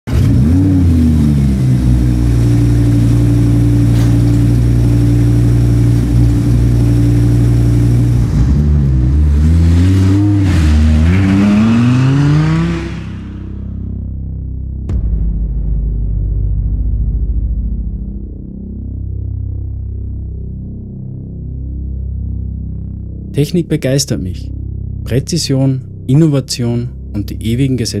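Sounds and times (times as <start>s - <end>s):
car engine revving and idling: 0.0s - 14.2s.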